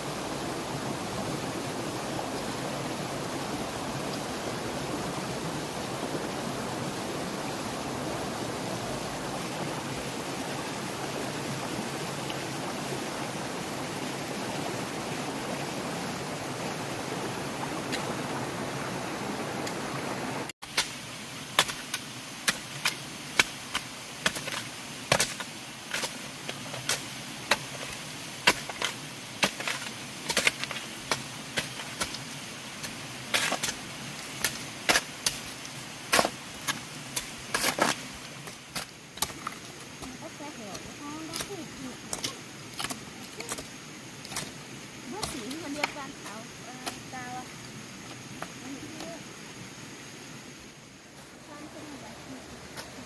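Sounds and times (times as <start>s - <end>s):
tool strikes on bamboo: 20.7s - 26.2s.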